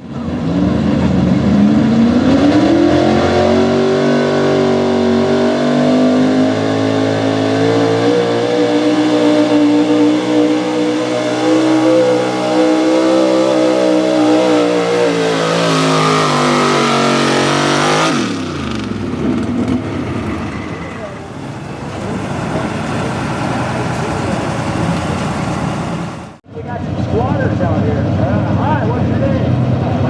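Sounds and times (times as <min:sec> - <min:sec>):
truck engine revving hard: 0:00.0 - 0:26.4
crowd noise: 0:19.1 - 0:26.4.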